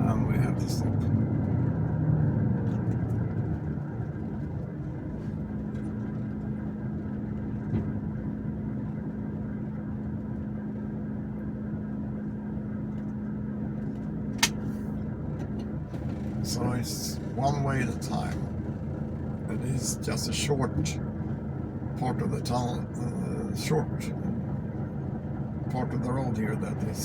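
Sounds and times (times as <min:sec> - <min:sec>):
truck engine idling: 0:02.7 - 0:27.0
sharp click: 0:14.4 - 0:14.6.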